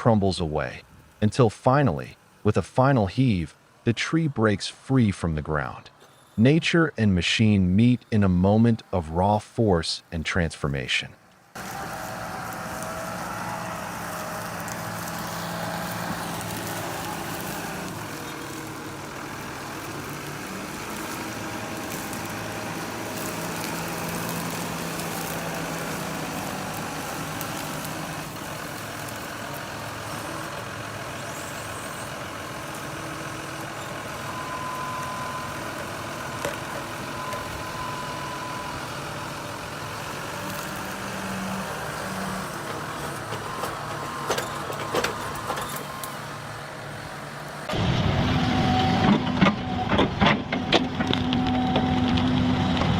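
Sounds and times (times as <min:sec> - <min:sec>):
heavy machine engine running: 0:11.4 - 0:52.9.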